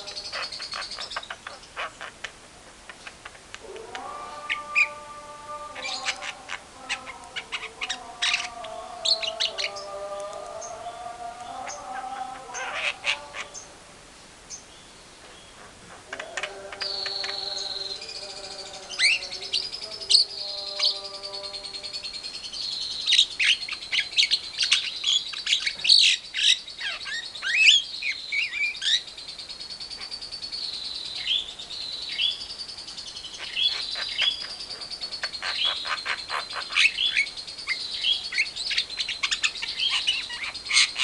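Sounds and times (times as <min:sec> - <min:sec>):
long high bird trill: 0:00.0 - 0:01.9, 0:03.9 - 0:13.8
birds chirping and clicking: 0:00.0 - 0:13.8, 0:14.5 - 0:41.0
whistled bird notes: 0:15.6 - 0:41.0.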